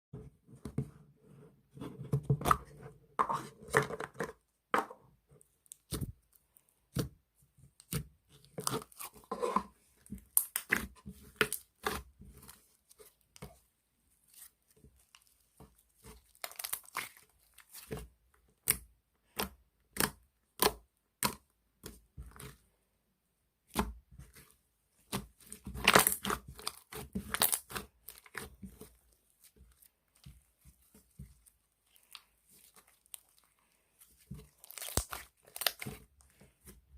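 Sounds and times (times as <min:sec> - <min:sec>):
slime squished by hand: 0:14.2 - 0:18.0, 0:25.0 - 0:36.7.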